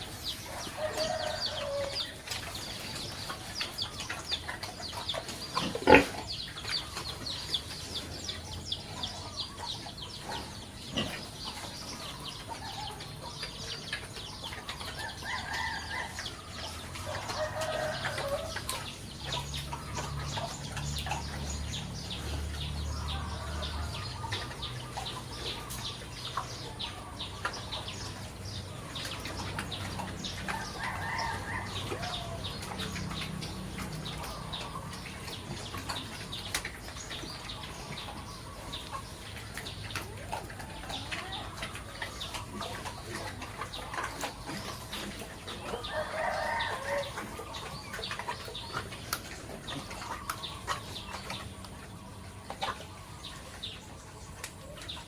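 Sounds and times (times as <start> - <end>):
chickens clucking: 0.0 - 55.0
rooster crowing: 0.4 - 2.2, 17.0 - 18.6, 30.5 - 32.6, 45.7 - 47.4.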